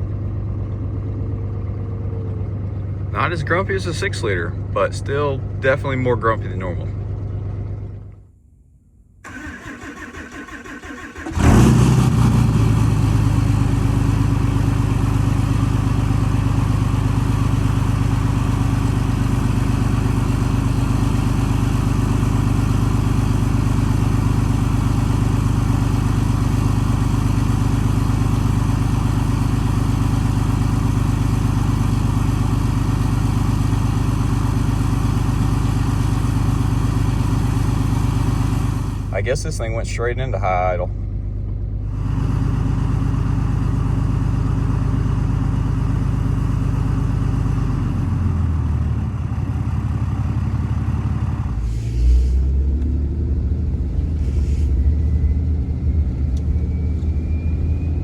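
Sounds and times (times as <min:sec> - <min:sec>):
diesel engine high idle: 0:00.0 - 0:08.2, 0:09.3 - 0:58.0
diesel engine cranking: 0:09.2 - 0:28.9, 0:47.8 - 0:58.0.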